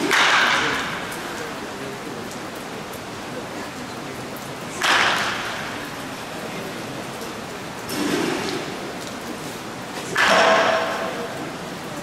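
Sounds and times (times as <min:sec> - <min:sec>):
baseball bat hit: 0:00.0 - 0:00.9, 0:10.2 - 0:11.2
rain drumming on roof: 0:00.0 - 0:12.0.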